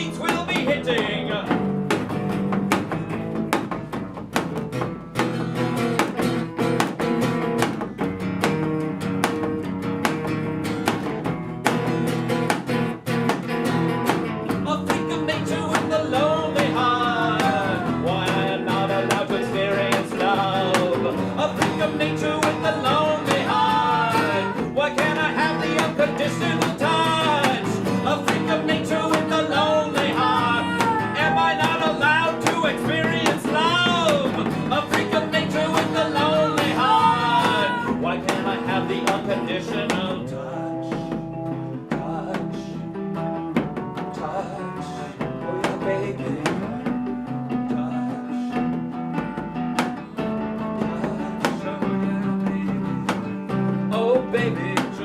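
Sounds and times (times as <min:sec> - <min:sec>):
strummed guitar chords: 0:00.0 - 0:55.0.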